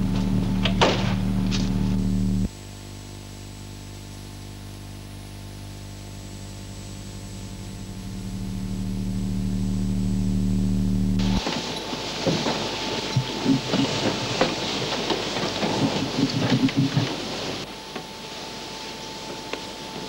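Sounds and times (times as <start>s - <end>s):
car engine running: 0.0s - 2.5s, 6.9s - 17.7s.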